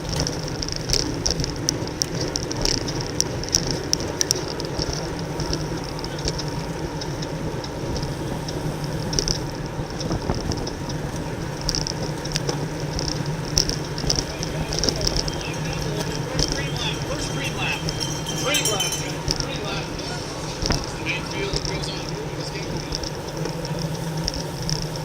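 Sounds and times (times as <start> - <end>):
bicycle tyre rumble on road: 0.0 - 25.0
pulsing high hiss: 14.2 - 23.6.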